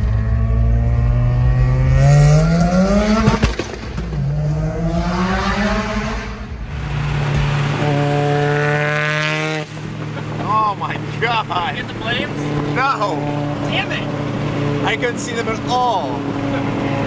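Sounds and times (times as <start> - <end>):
rotary engine revving hard: 0.0 - 3.6, 4.2 - 17.0
engine crackling: 6.6 - 17.0.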